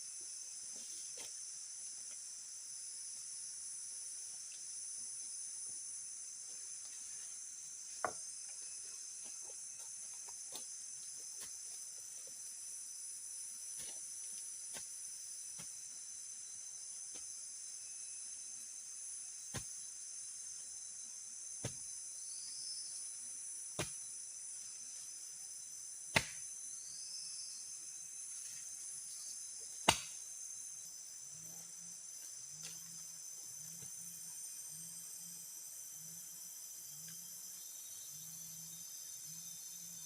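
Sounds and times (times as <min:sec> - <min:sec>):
forest insects chirring: 0:00.0 - 0:40.0.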